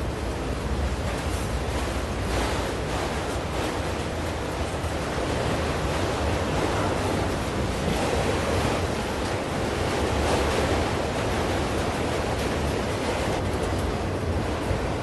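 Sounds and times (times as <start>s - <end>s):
train cars rolling on rails: 0.0s - 15.0s.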